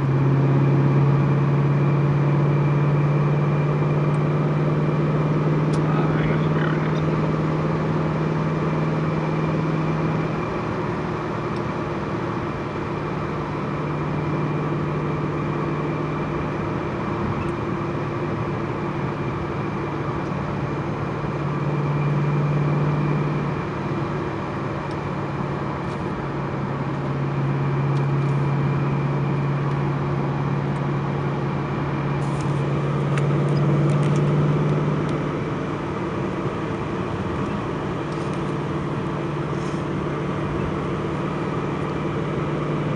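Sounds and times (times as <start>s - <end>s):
car engine running: 0.0s - 42.9s.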